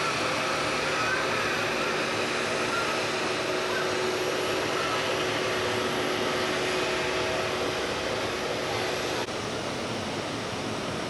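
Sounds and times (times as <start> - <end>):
jet engines with faint whine: 0.0 - 11.0.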